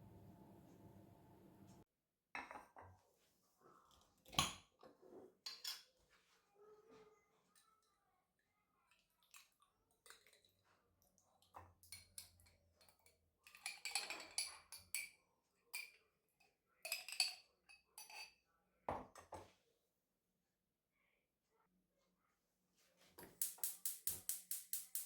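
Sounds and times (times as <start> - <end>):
utensils and dishes clinking: 13.4 - 15.1.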